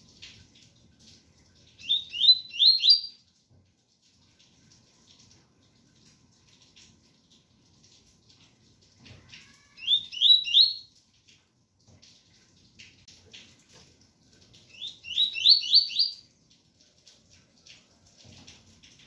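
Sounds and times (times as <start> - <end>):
faint rain patter: 0.0 - 19.0
bird singing whistled notes: 1.8 - 3.2, 9.8 - 10.9, 14.7 - 16.2.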